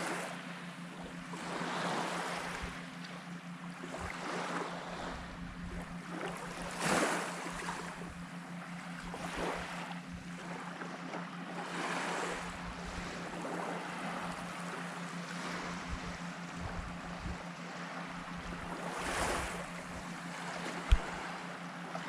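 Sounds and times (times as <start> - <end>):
small waves breaking on beach: 0.0 - 22.0
steady low hum: 0.0 - 22.0
wind buffeting microphone: 15.5 - 17.5.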